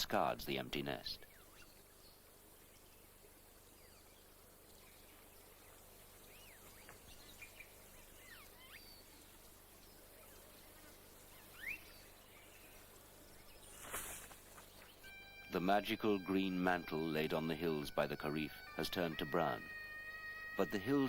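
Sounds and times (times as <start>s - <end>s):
faint bird chirps and whistles: 1.2s - 15.5s.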